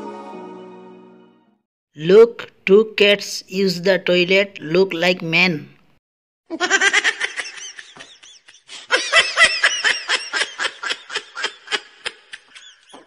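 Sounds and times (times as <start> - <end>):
high-pitched giggling: 6.5 - 13.0.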